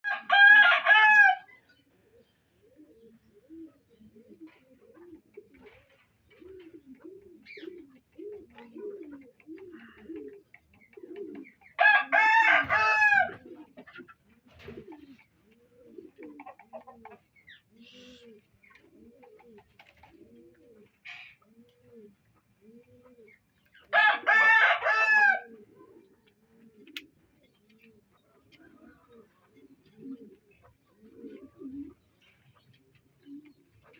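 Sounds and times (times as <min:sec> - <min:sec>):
pigeons cooing: 0:00.1 - 0:33.9
peacock calling: 0:17.8 - 0:18.4.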